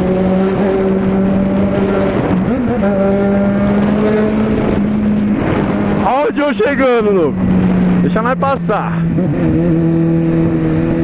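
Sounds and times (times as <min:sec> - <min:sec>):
motorcycle engine running loud: 0:00.0 - 0:11.0.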